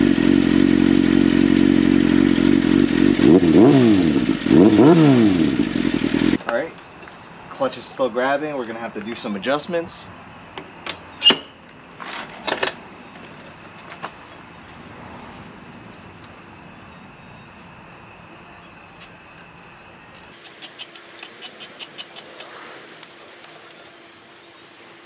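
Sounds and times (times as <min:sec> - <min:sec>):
insects chirring: 0:06.4 - 0:25.0
faint quick ticks: 0:20.4 - 0:23.1
sharp clicks: 0:20.4 - 0:24.0.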